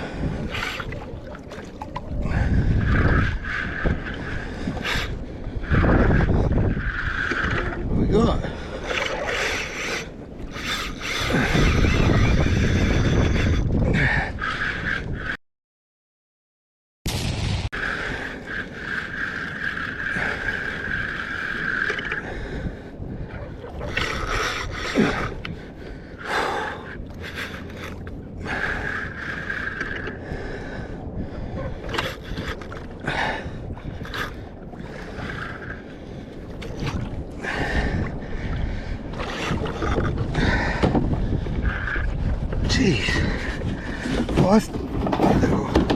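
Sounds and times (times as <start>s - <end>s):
water sloshing: 0.0s - 12.3s, 31.6s - 45.9s.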